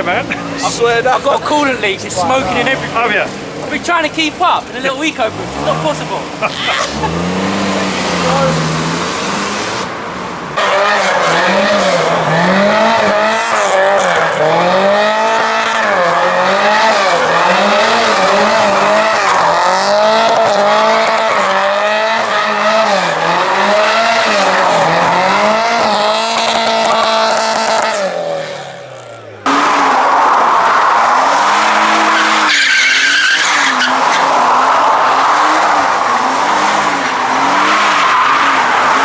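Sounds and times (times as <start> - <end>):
tyres squealing: 0.0 - 9.8, 30.6 - 39.0
car engine revving: 0.0 - 39.0.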